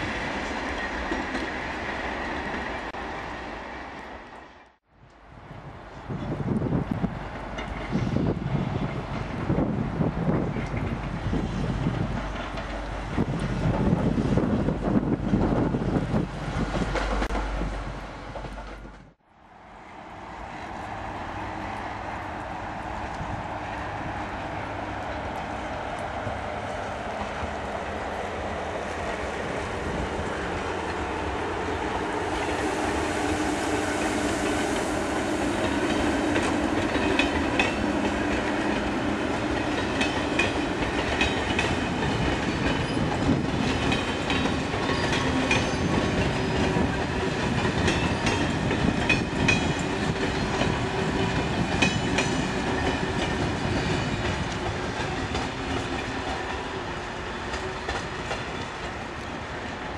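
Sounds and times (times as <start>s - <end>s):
train rumbling past: 0.0s - 59.9s
wheels clicking over rail joints: 34.5s - 59.9s.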